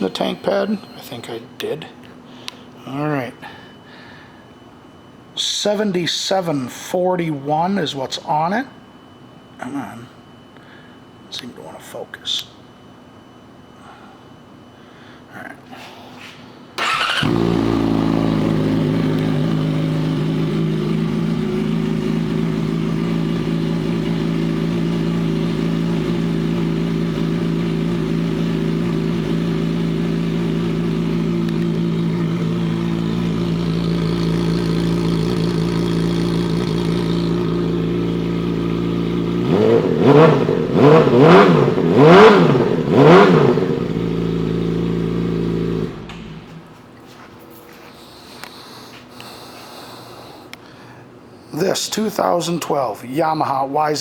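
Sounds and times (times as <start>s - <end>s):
motorcycle engine starting and idling: 0.0s - 1.4s, 16.8s - 46.8s
motorcycle engine revving: 16.8s - 46.7s.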